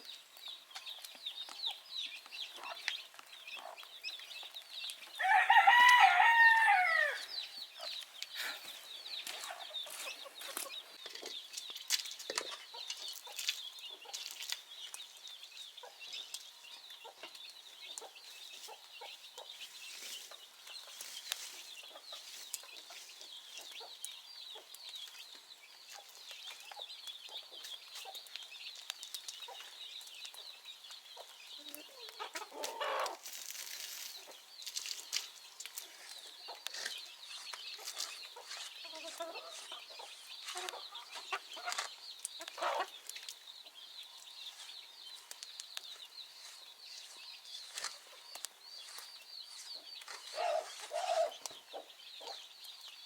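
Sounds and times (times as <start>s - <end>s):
rooster crowing: 5.2s - 7.3s.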